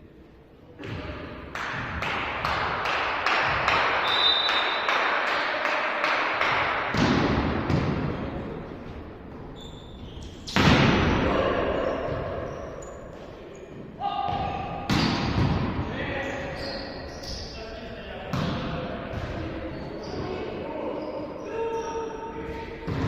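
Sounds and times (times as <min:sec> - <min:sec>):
volleyball being hit: 0:06.4 - 0:08.2, 0:10.5 - 0:11.2, 0:14.4 - 0:15.8.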